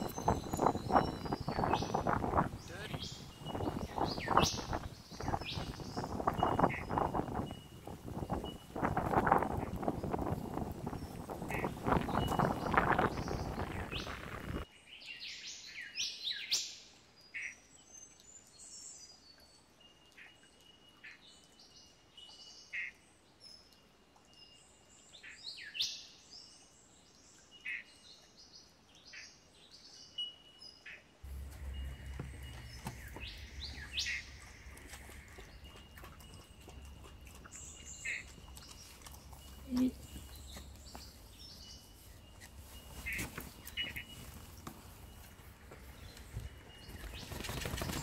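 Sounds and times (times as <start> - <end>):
birds chirping and calling: 0.0 - 14.6, 31.3 - 48.0
low hum: 31.2 - 42.9.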